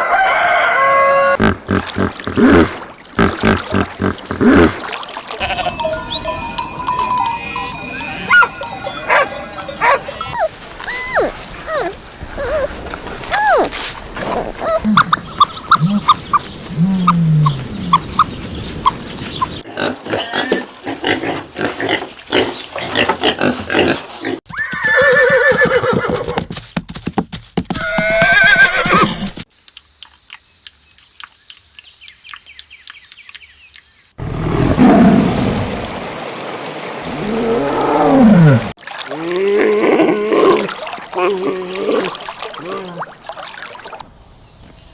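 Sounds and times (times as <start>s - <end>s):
horse whinnying: 24.5s - 26.4s, 27.8s - 29.4s
tiger growling: 34.2s - 35.5s.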